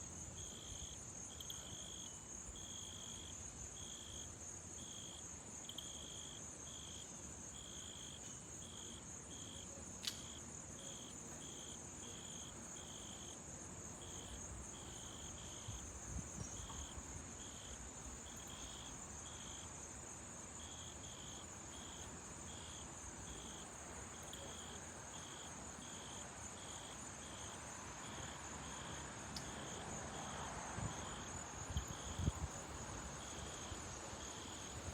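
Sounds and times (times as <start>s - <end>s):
insect chirp: 0.0s - 34.9s
insects trilling: 0.0s - 34.9s.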